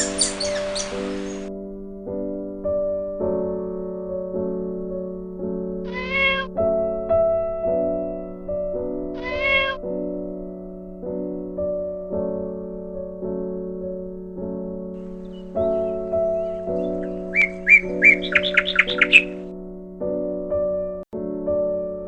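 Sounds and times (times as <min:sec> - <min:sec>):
soft piano music: 0:00.0 - 0:22.0
cat meowing: 0:05.9 - 0:06.6, 0:09.2 - 0:09.8.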